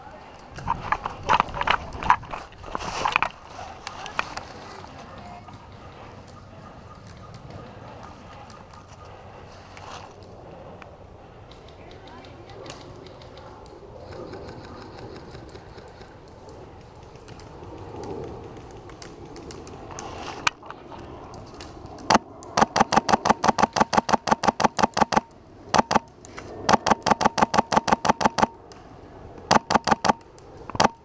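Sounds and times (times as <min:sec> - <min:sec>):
low rustling: 0:00.2 - 0:05.7.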